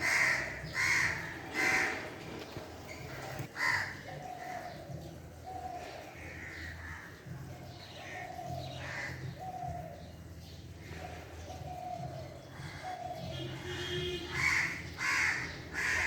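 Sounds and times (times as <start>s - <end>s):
crows cawing: 0.0s - 2.1s, 3.5s - 4.7s, 8.0s - 9.7s, 14.3s - 16.0s
pigeons cooing: 0.0s - 16.0s.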